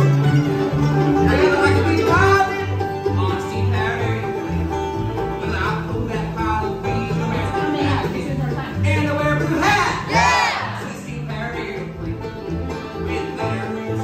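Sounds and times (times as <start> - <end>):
banjo: 0.0 - 14.0
bluegrass band playing: 0.0 - 14.0.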